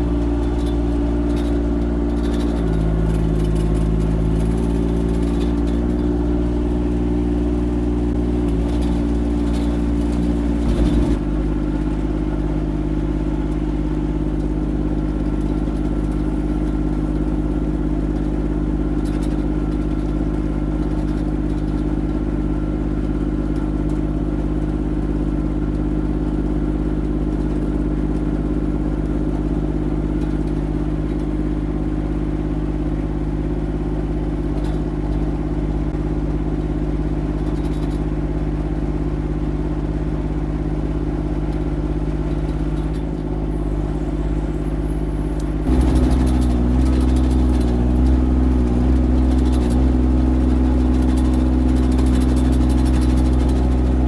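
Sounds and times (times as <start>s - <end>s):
small engine running: 0.0s - 12.7s, 42.5s - 54.0s.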